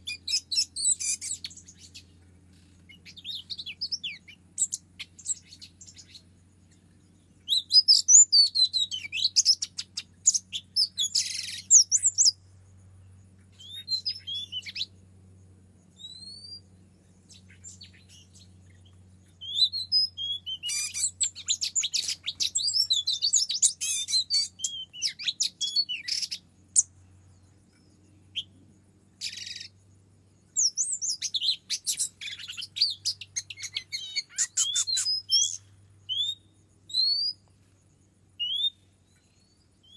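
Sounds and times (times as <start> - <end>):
songbird chirps and whistles: 0.0 - 15.0, 15.9 - 39.9
faint low hum: 0.0 - 39.9.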